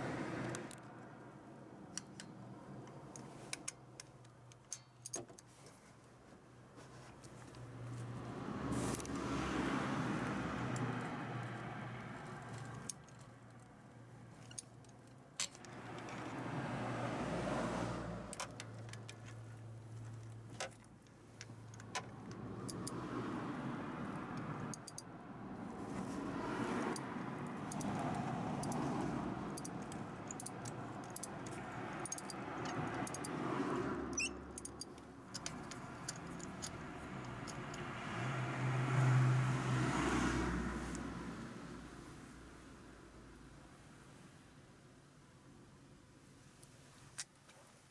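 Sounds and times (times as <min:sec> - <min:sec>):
cars passing by: 0:00.0 - 0:01.9, 0:07.3 - 0:14.3, 0:15.4 - 0:20.6, 0:21.4 - 0:44.7
metallic tool clicks: 0:24.7 - 0:25.1, 0:27.7 - 0:28.9, 0:29.5 - 0:33.4, 0:34.1 - 0:37.9.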